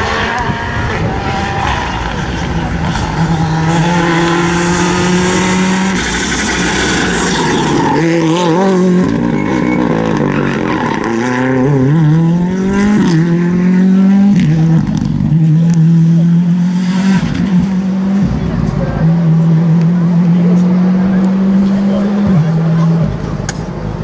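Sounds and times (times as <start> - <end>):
rally car engine revving: 0.0 - 24.0.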